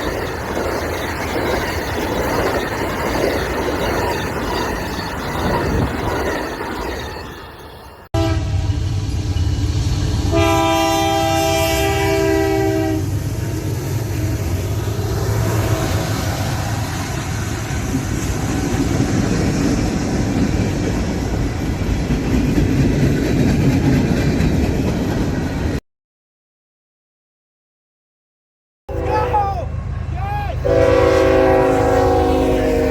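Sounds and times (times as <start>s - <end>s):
train wheels rumbling on track: 0.0s - 25.8s, 28.9s - 32.9s
locomotive air horn: 8.1s - 8.9s, 10.2s - 13.1s, 28.9s - 32.9s.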